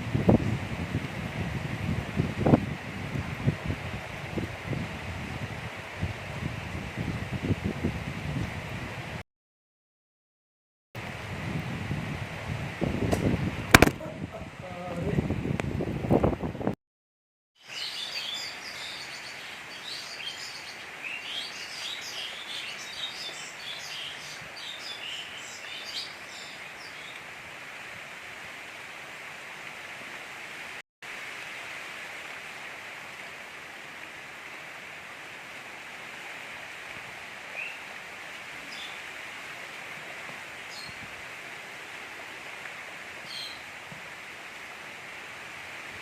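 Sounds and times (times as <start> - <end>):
steady gentle rain: 0.0 - 9.2, 11.0 - 16.8, 17.6 - 46.0
small birds chirping: 17.6 - 27.2, 38.6 - 39.0.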